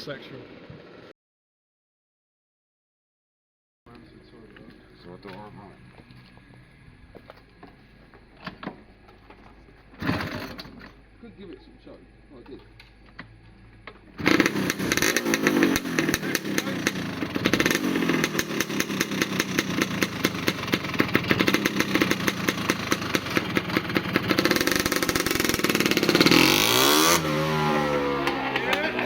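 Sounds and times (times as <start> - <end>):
motorbike engine revving: 10.0 - 11.1, 14.1 - 29.0.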